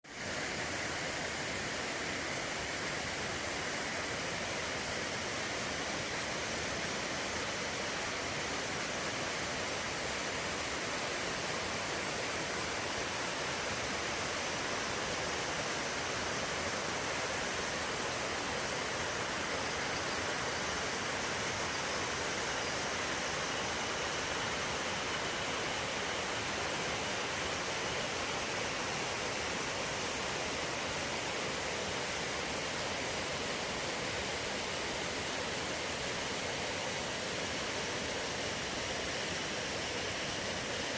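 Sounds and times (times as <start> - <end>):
waterfall rushing: 0.1 - 40.9.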